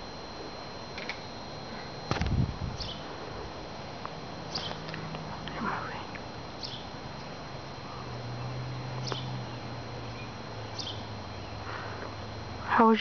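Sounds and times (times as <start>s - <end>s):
steady low hum: 0.0s - 13.0s
small bird chirping: 2.8s - 3.0s, 4.5s - 4.9s, 6.6s - 6.9s, 7.9s - 11.6s.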